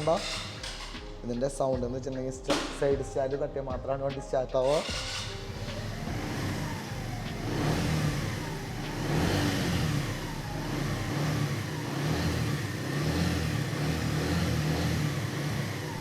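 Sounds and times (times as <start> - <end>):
motorcycle engine revving: 0.0 - 1.2, 4.6 - 16.0.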